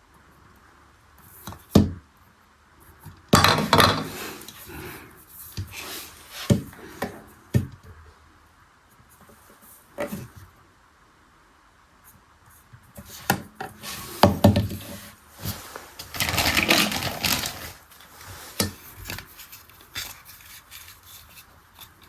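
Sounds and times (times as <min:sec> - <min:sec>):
plastic parts clattering and rubbing: 0:03.3 - 0:07.3, 0:13.0 - 0:22.0.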